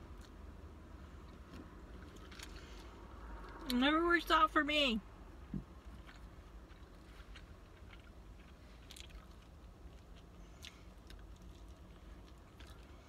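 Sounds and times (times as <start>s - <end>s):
person chewing: 0.0s - 0.6s, 5.8s - 13.0s.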